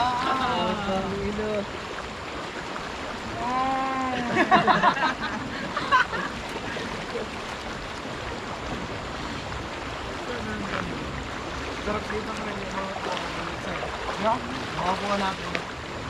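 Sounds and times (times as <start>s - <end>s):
flowing river water: 0.0s - 16.0s
voices calling out: 9.9s - 15.7s.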